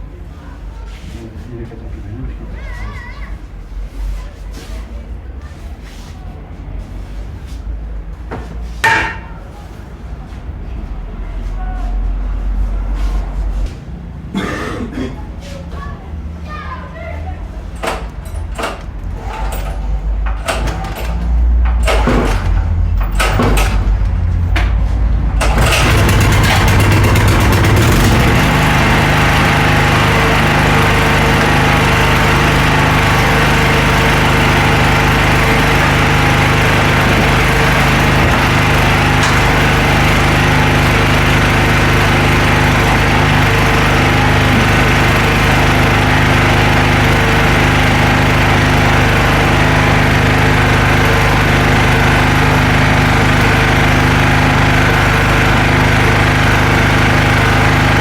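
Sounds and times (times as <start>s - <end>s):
small generator engine running: 17.5s - 58.0s.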